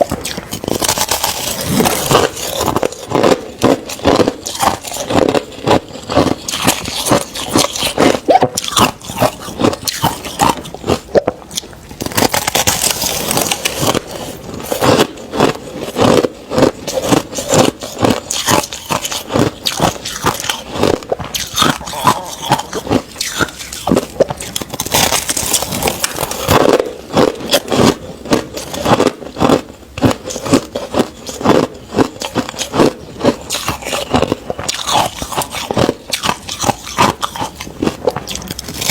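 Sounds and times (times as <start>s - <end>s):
chewing crushed ice: 0.0s - 38.9s.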